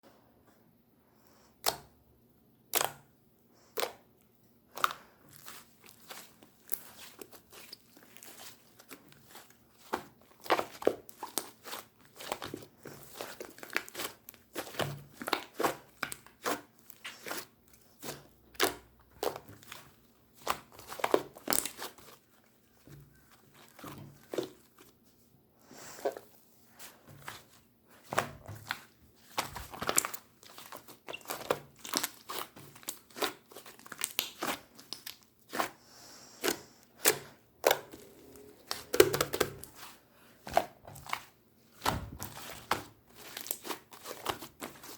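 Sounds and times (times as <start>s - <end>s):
slime squeezed by hand: 28.2s - 35.8s.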